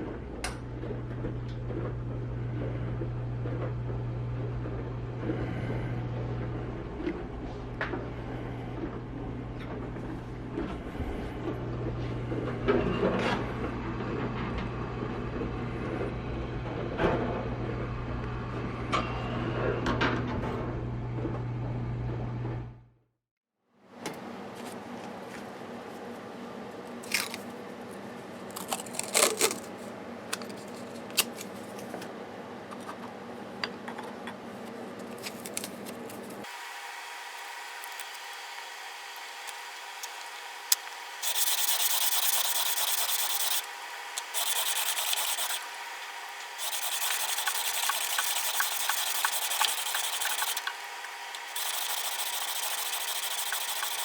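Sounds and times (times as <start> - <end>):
plane iron scraping on abrasive: 41.2 - 54.0.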